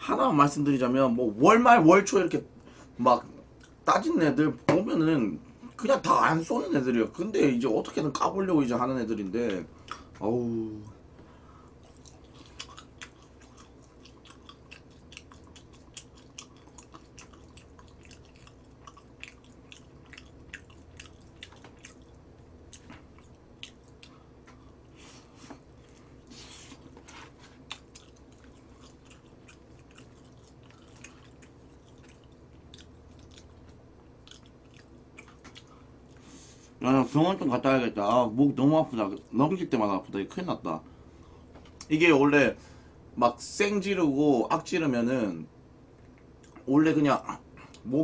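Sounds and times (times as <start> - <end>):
person chewing crispy chicken: 11.7 - 36.4.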